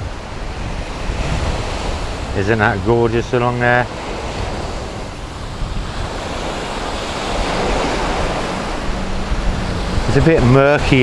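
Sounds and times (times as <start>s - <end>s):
small waves breaking on beach: 0.0s - 11.0s
wind buffeting microphone: 0.0s - 11.0s.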